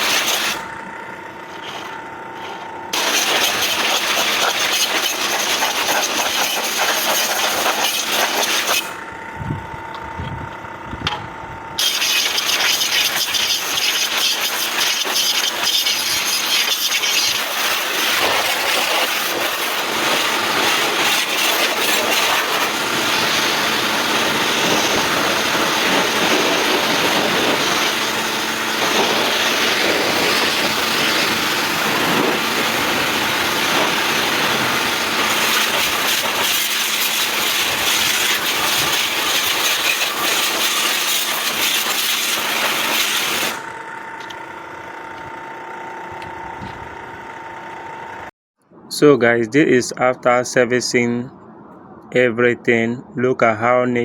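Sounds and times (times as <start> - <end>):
water jet spraying: 0.0 - 0.6, 3.0 - 9.0, 11.8 - 43.6.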